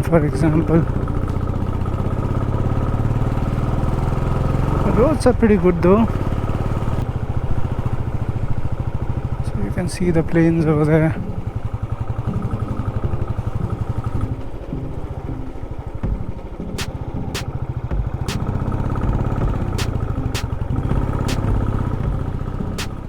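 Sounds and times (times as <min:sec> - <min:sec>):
motorcycle engine running: 0:00.2 - 0:05.3, 0:05.9 - 0:23.0
sharp clicks: 0:21.3 - 0:21.6.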